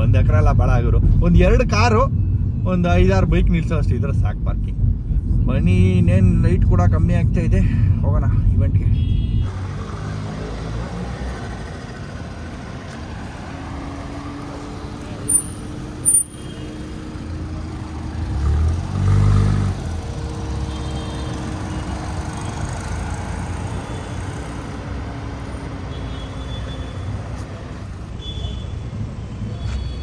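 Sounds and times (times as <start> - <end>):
road noise: 0.0 - 30.0
car engine: 9.5 - 28.1.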